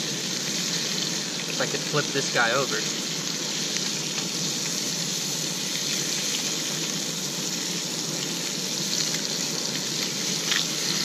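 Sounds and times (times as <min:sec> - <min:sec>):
fish sizzling in butter: 0:00.0 - 0:11.0.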